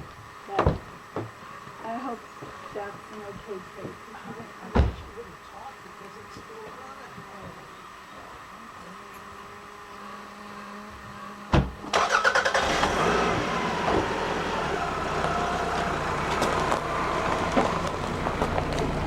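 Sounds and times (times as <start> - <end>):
car driving on road: 11.9 - 19.0.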